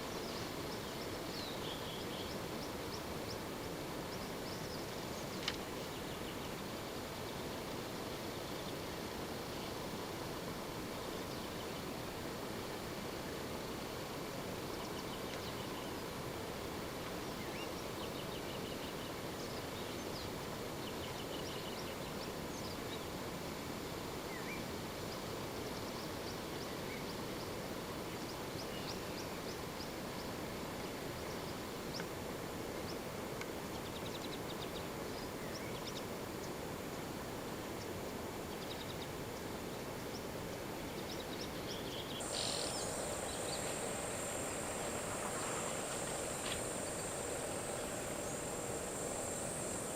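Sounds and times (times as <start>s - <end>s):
background hiss: 0.0s - 49.9s
birds chirping and calling: 42.2s - 49.9s
high insect buzz: 42.2s - 49.9s.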